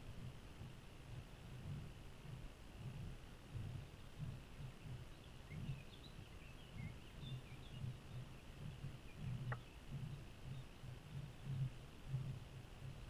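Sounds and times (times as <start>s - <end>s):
small birds chirping: 1.6s - 13.0s.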